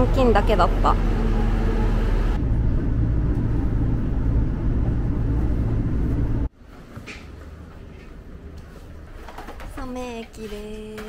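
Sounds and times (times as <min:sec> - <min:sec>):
railcar engine rumble: 0:00.0 - 0:06.5
station background noise: 0:00.0 - 0:11.0.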